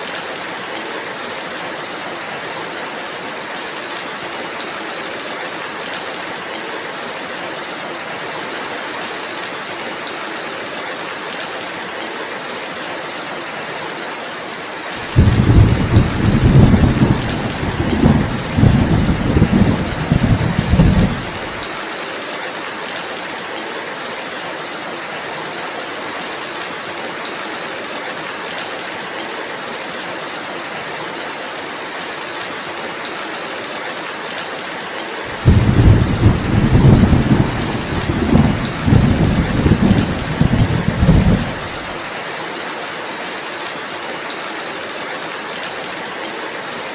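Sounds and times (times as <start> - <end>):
steady rain falling: 0.0 - 46.9
rolling thunder rumble: 15.1 - 21.6, 35.4 - 41.9.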